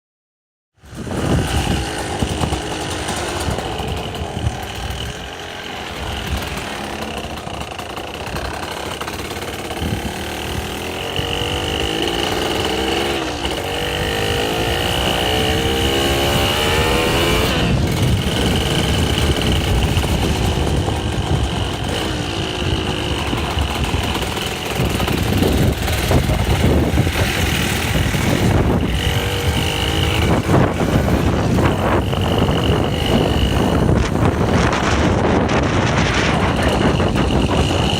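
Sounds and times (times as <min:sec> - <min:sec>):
dirt bike engine accelerating: 0:00.8 - 0:37.9.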